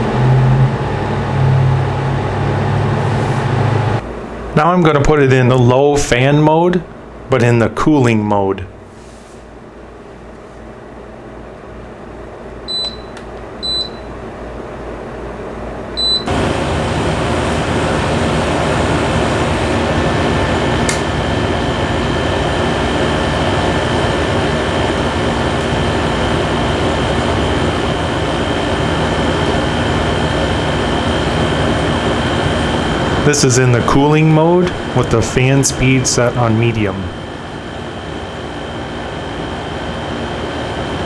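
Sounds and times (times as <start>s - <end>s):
air conditioner running: 0.0s - 41.0s
control panel beeps: 12.7s - 14.1s, 16.0s - 16.3s
faint whine: 16.0s - 41.0s.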